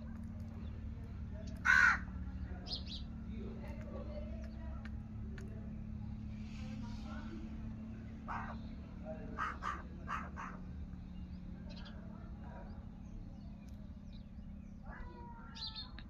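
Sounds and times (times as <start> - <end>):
steady low hum: 0.0 - 16.0
harsh bird caws: 1.4 - 2.4, 8.2 - 10.8, 14.8 - 16.0.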